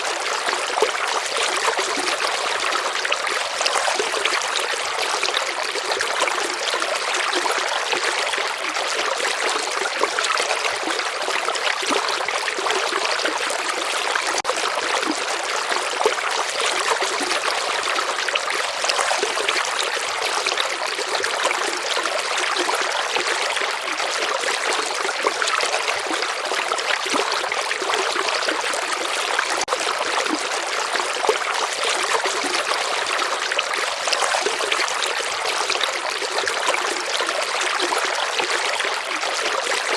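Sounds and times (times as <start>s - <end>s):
stream water rushing: 10.3s - 39.9s.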